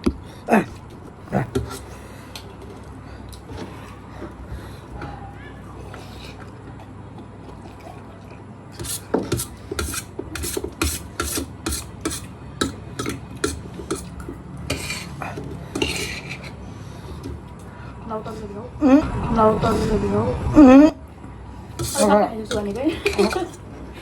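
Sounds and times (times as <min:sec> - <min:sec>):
utensils scraping in a bowl: 0:00.8 - 0:01.9, 0:08.8 - 0:17.4, 0:21.6 - 0:24.0.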